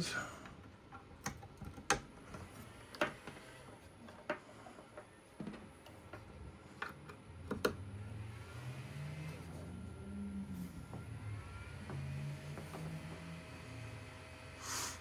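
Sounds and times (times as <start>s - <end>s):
fans spinning up: 5.9s - 15.0s.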